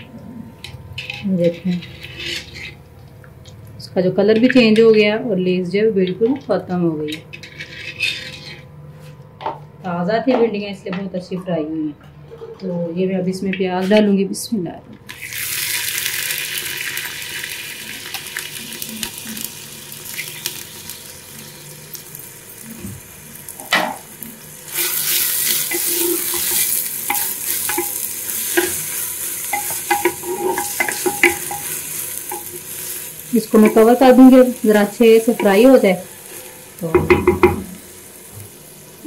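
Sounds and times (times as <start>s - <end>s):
spoon scraping pan: 0.9s - 2.8s, 7.1s - 9.1s, 24.8s - 37.6s
onions sizzling in oil: 15.1s - 39.0s.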